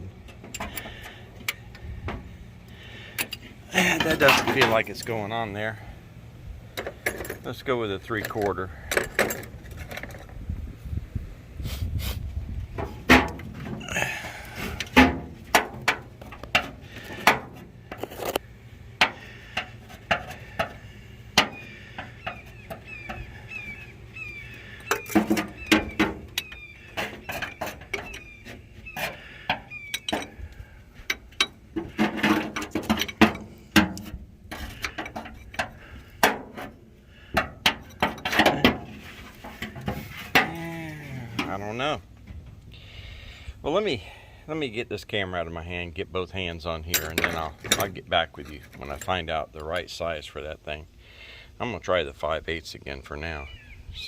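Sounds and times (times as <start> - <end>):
wrenches clinking against metal: 3.2 - 5.3, 6.8 - 10.3, 29.0 - 30.4, 31.0 - 36.7, 46.9 - 49.8.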